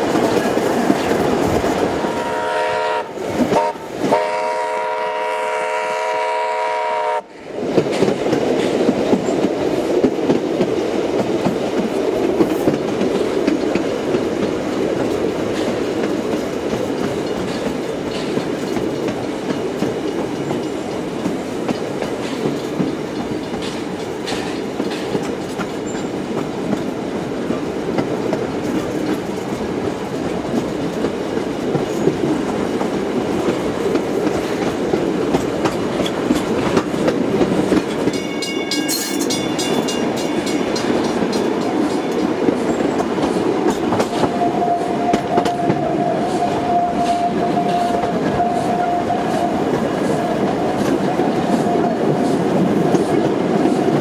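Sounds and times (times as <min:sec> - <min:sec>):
wheels clattering over rail joints: 0:00.0 - 0:02.0, 0:07.7 - 0:44.4
train rumble: 0:00.0 - 0:54.0.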